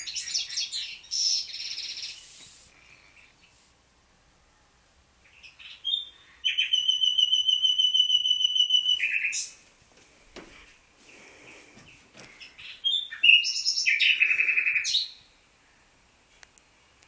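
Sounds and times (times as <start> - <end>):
rapid bird trill: 0.0 - 2.4, 5.9 - 9.5
songbird singing: 0.0 - 3.6, 5.2 - 9.6, 11.1 - 16.0.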